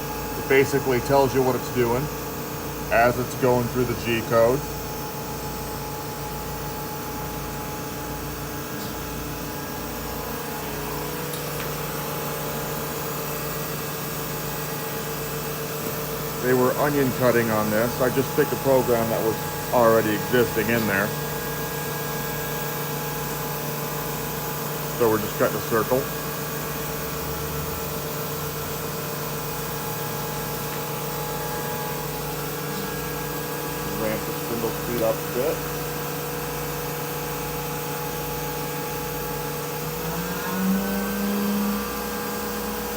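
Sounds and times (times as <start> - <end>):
cnc router machine hum: 0.0 - 42.9
router spindle whine and hiss: 29.1 - 42.9.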